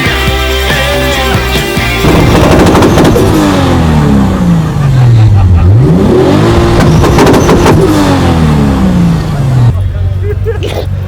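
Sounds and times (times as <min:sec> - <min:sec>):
car engine revving: 0:00.6 - 0:11.0
exhaust pops and bangs: 0:02.0 - 0:04.3, 0:06.6 - 0:08.4.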